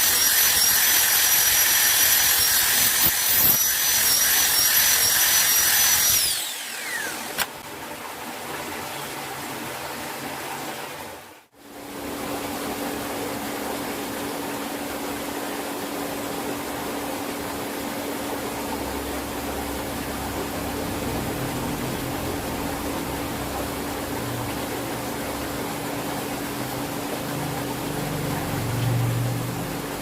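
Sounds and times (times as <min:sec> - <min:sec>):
power tool whine: 0:00.0 - 0:07.6
steady mechanical noise: 0:00.0 - 0:07.8, 0:08.7 - 0:30.0
single click: 0:07.3 - 0:07.6.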